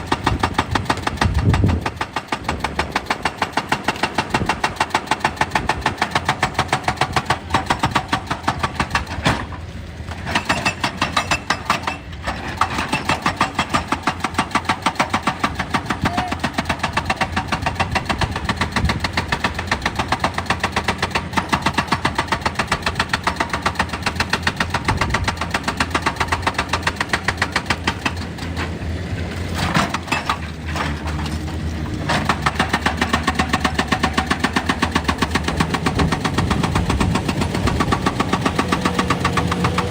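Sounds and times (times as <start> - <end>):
hydraulic breaker hammering rock: 0.0 - 39.9
diesel engine running: 15.4 - 39.9.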